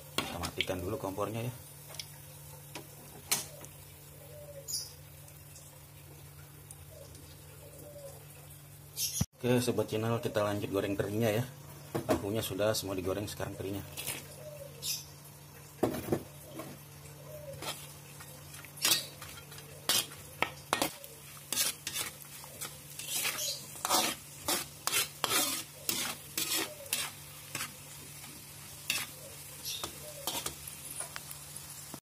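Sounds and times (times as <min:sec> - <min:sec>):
fish frying in oil: 0:00.0 - 0:07.8, 0:15.0 - 0:32.0
metal spatula scraping a wok: 0:17.5 - 0:17.9, 0:18.5 - 0:30.8.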